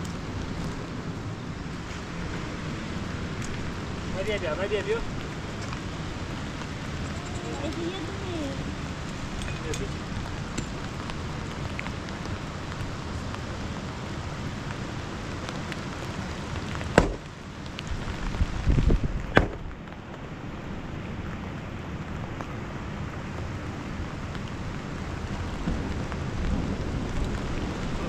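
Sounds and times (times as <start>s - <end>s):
steady rain falling: 0.0s - 28.0s
sharp knocks: 17.0s - 17.2s.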